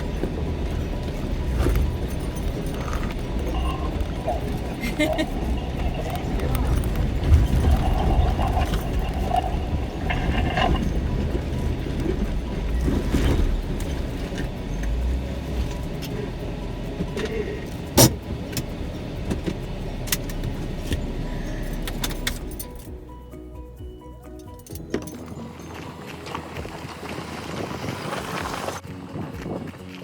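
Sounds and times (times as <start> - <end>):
clicks and rattles: 0.0 - 23.0
off-road vehicle engine running: 0.0 - 30.0.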